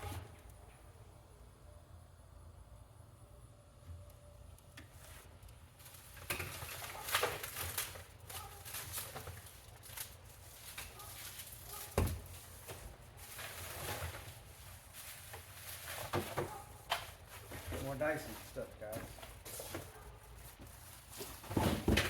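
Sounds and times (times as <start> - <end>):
boxes rustling and knocking: 6.2 - 22.0.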